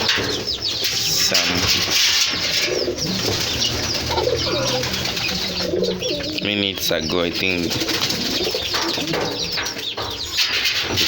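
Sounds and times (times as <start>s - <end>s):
pigeons cooing: 0.0s - 11.0s
high bird chirps: 2.7s - 10.4s.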